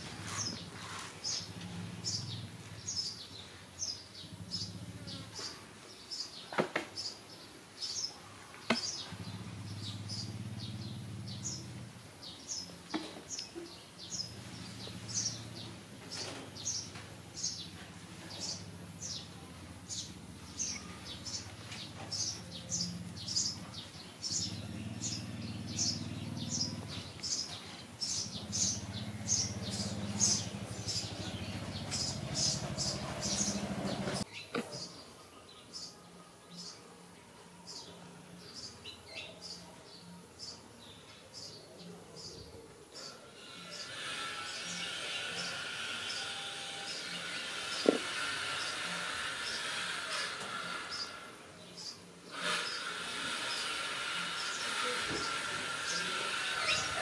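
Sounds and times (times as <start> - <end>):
small bird chirping: 19.9 - 35.0, 51.8 - 57.0.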